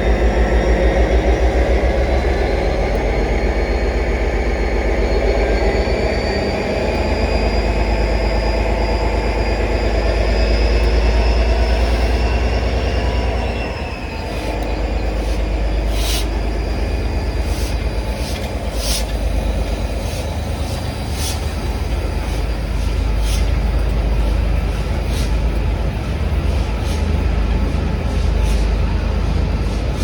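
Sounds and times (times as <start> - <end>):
high wheel squeal: 0.0 - 23.6
train rumbling past: 0.0 - 30.0
train wheel clicks: 0.6 - 5.0, 10.1 - 30.0.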